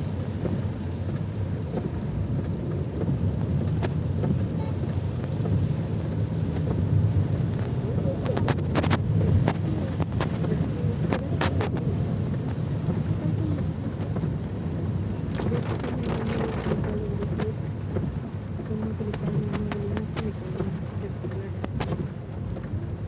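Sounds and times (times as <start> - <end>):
heavy rain: 0.0 - 23.0.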